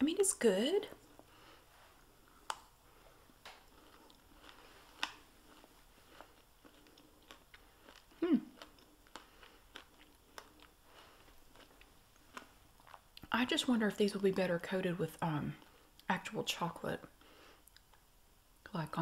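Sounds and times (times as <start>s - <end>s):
mouth clicks and smacks while chewing: 17.6s - 18.1s.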